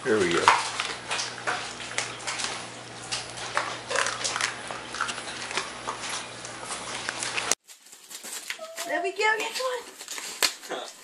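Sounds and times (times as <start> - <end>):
dog chewing on a toy: 0.2 - 7.6.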